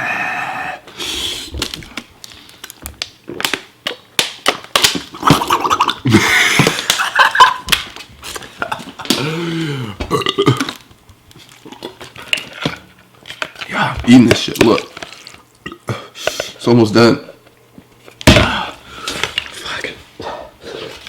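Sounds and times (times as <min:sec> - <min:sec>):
man burping: 0:09.1 - 0:10.8.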